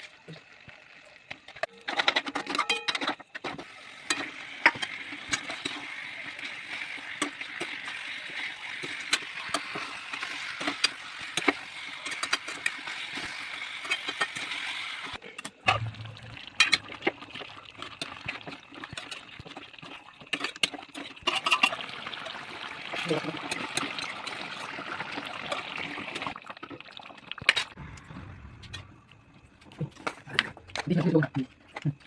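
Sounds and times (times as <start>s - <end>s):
curry sizzling in a pan: 3.6s - 15.2s, 16.4s - 27.7s.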